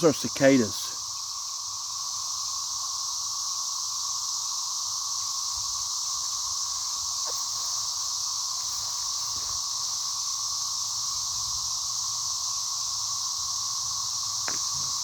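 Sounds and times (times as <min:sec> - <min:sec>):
cicadas droning: 0:00.0 - 0:15.0.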